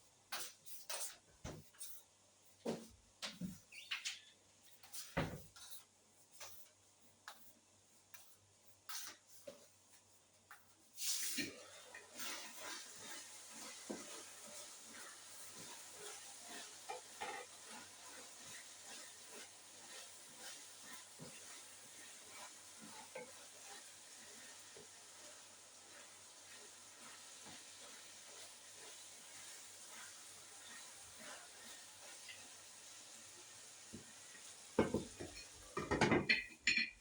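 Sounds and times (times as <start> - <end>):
stirring clicks and scrapes: 10.5 - 32.7
food sizzling in a pan: 10.9 - 37.0.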